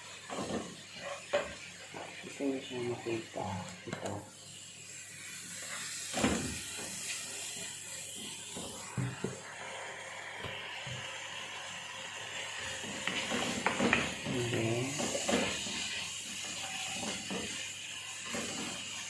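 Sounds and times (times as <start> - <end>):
steady hiss: 0.0 - 19.0
kitchen knocks and clatters: 0.1 - 2.2, 6.0 - 7.0, 12.8 - 17.6.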